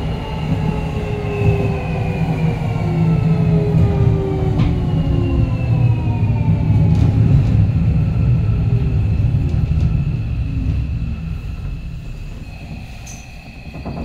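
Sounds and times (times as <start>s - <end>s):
wheels rumbling on rail: 0.0s - 14.0s.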